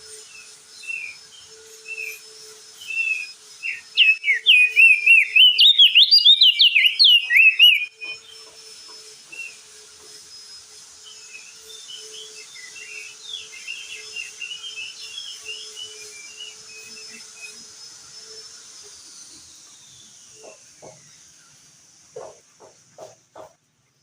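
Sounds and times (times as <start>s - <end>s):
bird twittering song: 0.4s - 8.6s, 11.1s - 17.6s.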